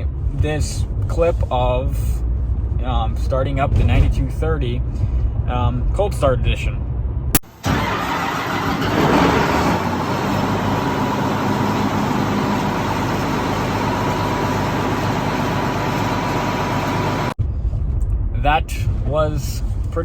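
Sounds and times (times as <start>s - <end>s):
combine diesel engine starting: 7.4s - 17.4s.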